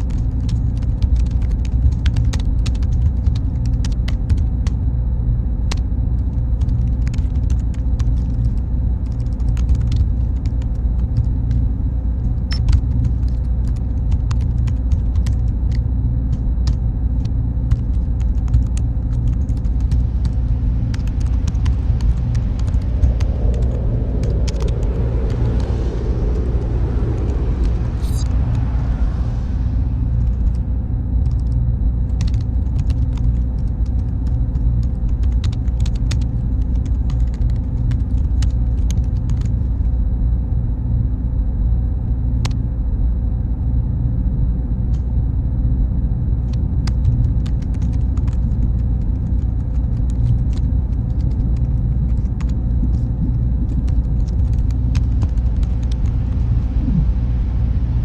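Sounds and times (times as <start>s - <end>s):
faint constant tone: 0.0s - 58.0s
machine fans humming: 6.6s - 38.4s, 47.2s - 58.0s.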